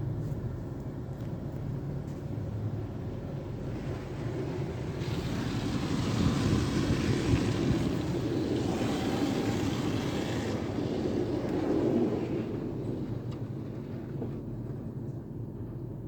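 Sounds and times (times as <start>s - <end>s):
car wash machine rumbling: 2.7s - 14.7s.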